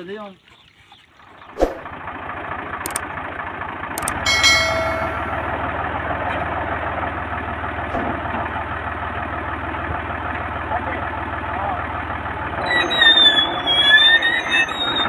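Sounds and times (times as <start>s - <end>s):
vehicle engine running: 1.3s - 13.0s
brief high ringing tone: 4.0s - 5.6s.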